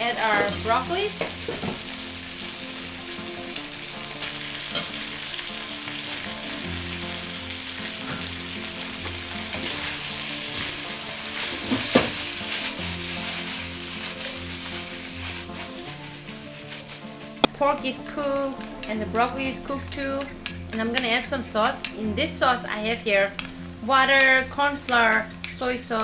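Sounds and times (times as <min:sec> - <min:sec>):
food sizzling in hot oil: 0:00.0 - 0:20.6
wok clattering: 0:04.2 - 0:05.2, 0:09.0 - 0:17.0
spatula scraping a wok: 0:07.7 - 0:17.2.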